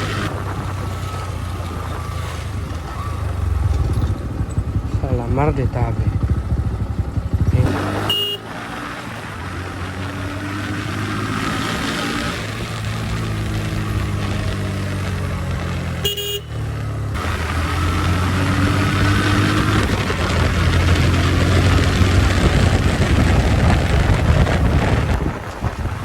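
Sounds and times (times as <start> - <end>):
motorcycle engine running: 0.0 - 26.0
short horn beep: 8.0 - 8.6, 16.0 - 16.6.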